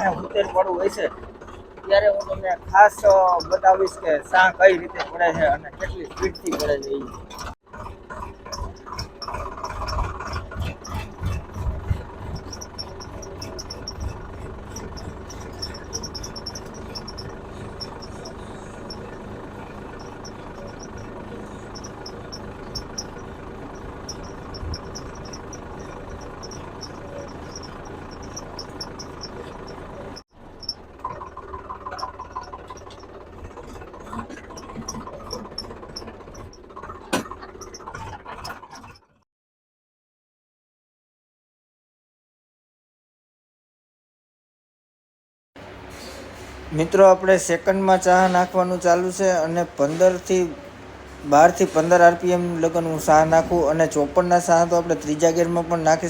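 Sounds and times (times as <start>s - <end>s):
tractor engine under load: 0.0s - 39.2s, 45.6s - 56.0s
rapid high chirping: 8.6s - 36.7s.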